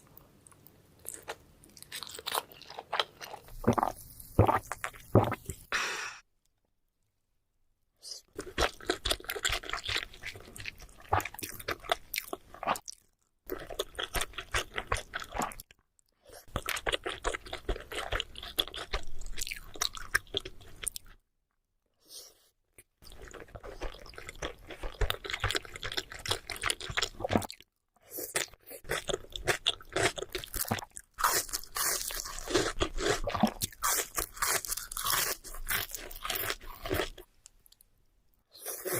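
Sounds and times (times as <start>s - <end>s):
wet chewing sounds: 23.0s - 27.6s.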